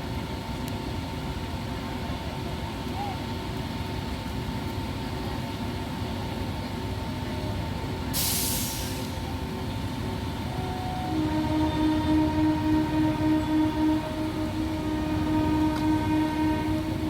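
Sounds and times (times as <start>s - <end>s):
electric train rumbling: 0.0s - 17.0s
train hiss: 8.0s - 17.0s
train horn wavering: 10.4s - 17.0s.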